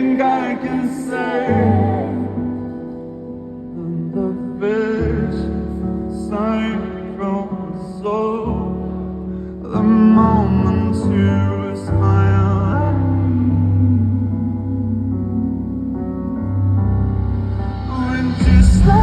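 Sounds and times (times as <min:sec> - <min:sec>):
person singing with vibrato: 0:00.0 - 0:16.7, 0:17.6 - 0:19.0
low bass notes: 0:12.9 - 0:19.0.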